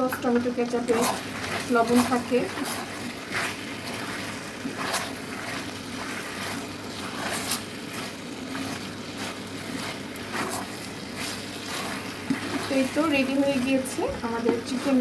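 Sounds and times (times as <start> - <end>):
chicken sizzling in a pan: 0.0 - 15.0
spatula scraping through sauce: 0.8 - 15.0.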